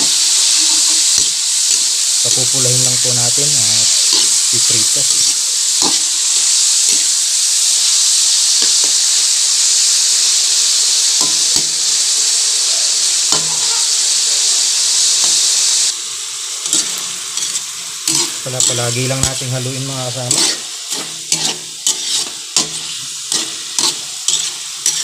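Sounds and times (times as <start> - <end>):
meat sizzling in hot oil: 0.0 - 25.0.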